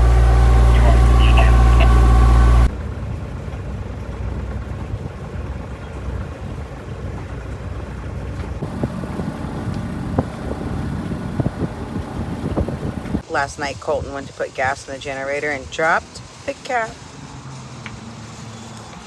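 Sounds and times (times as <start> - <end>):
loud machine hum: 0.0 - 2.7, 8.6 - 13.2
wind rumbling on microphone: 0.0 - 13.2.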